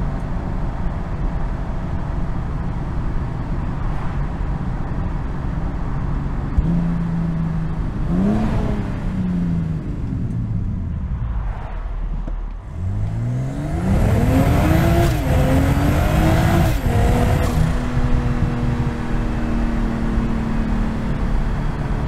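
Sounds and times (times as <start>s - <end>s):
car engine accelerating hard: 6.4s - 22.0s.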